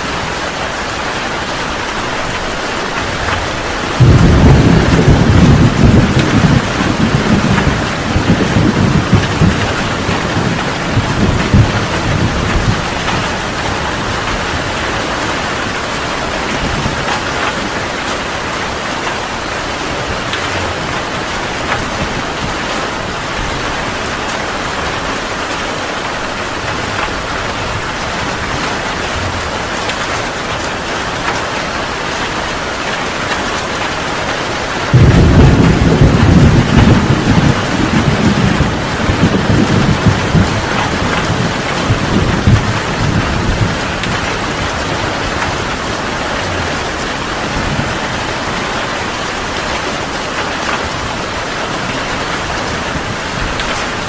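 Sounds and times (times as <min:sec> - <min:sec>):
heavy rain hissing: 0:00.0 - 0:54.0
low thunder rumble: 0:02.3 - 0:17.8, 0:34.8 - 0:48.5.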